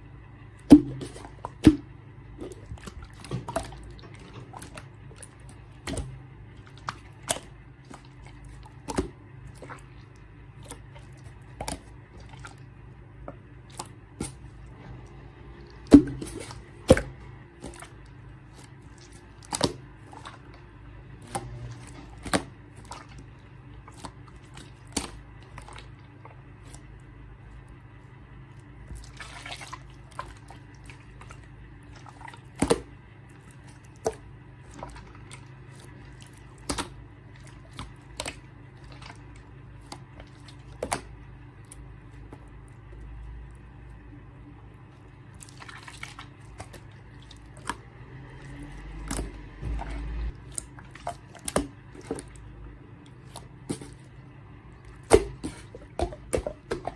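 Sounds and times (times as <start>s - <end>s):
faint low hum: 0.0s - 56.9s.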